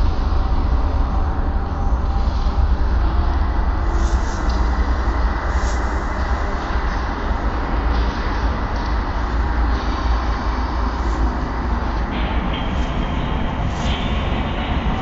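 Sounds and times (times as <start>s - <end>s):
rail vehicle rumbling on track: 0.0s - 15.0s
hiss: 3.8s - 8.5s.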